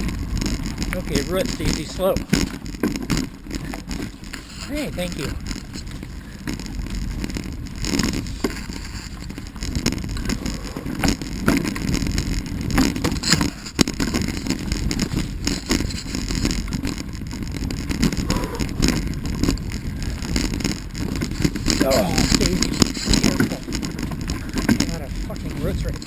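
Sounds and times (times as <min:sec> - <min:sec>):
knocks and rattles over roots: 0:00.0 - 0:26.0
wheels rolling on dirt trail: 0:00.0 - 0:26.0.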